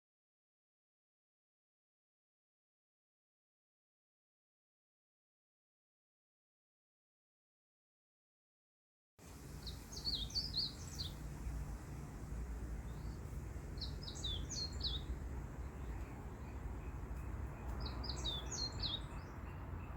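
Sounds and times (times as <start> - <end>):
songbird chirping: 9.2 - 19.9
low background rumble: 9.3 - 19.3.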